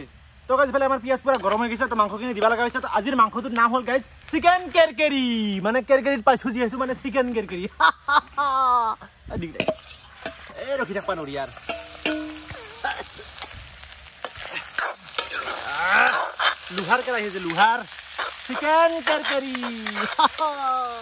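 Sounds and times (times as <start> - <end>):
chicken sizzling in a pan: 0.0 - 21.0
person speaking: 15.6 - 21.0.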